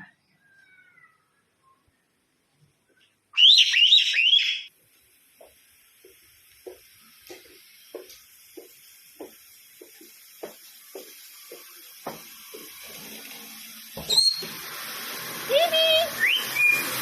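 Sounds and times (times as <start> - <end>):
parrot whistling call: 3.4 - 4.7, 14.0 - 14.5, 16.1 - 17.0
faint steady hiss: 4.7 - 17.0.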